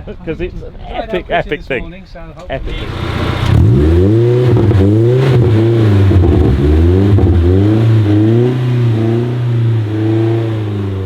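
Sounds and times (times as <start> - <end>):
car engine revving: 2.5 - 11.0.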